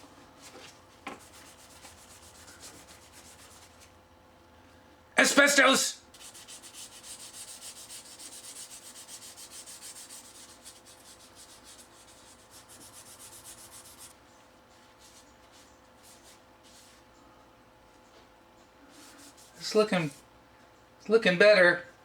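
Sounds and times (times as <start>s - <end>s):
sandpaper rubbing on plastic handle: 6.2s - 14.1s.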